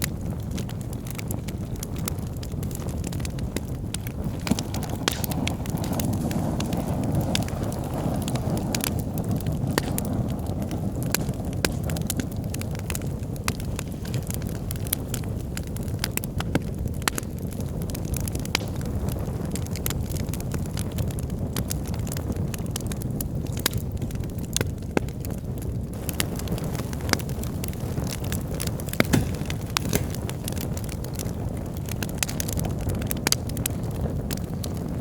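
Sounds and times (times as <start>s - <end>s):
burning logs crackling: 0.0s - 35.0s
low rumble of flames: 0.0s - 35.0s.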